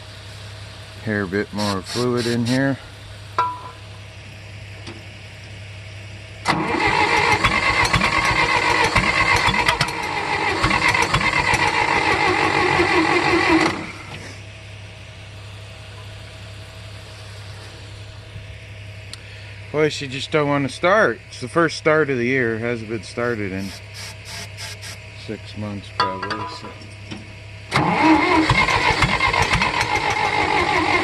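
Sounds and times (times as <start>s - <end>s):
tractor engine cranked by starter: 1.0s - 2.8s, 6.4s - 14.4s, 23.6s - 25.3s, 26.9s - 31.0s.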